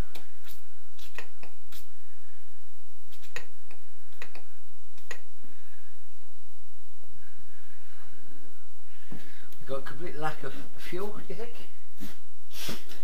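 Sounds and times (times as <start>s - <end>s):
sharp clicks and taps: 3.3s - 5.3s.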